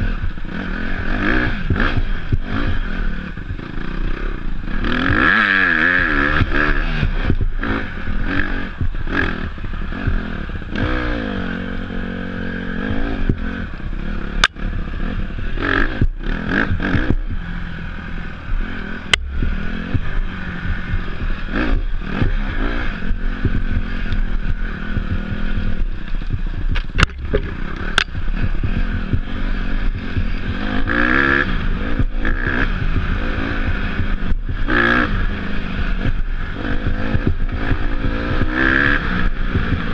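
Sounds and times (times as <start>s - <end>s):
motorcycle engine revving: 0.0s - 39.9s
sharp knocks: 26.2s - 28.3s.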